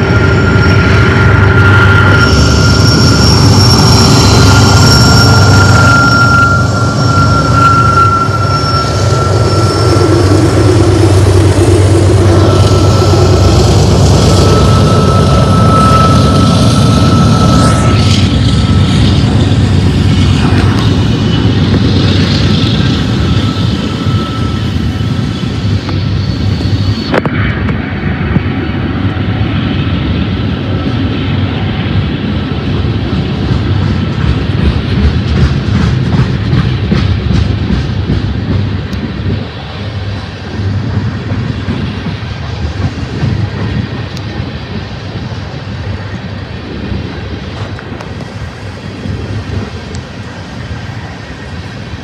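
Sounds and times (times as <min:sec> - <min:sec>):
thin high whine: 0:00.0 - 0:33.4
freight cars rolling past: 0:00.0 - 0:52.0
heavy locomotive engine rumble: 0:00.0 - 0:52.0.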